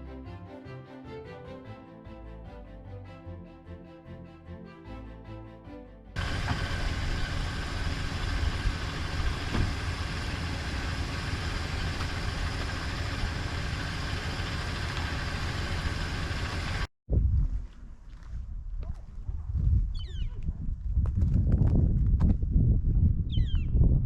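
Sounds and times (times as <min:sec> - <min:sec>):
music: 0:00.0 - 0:06.2
truck engine and road rumble: 0:06.2 - 0:16.9.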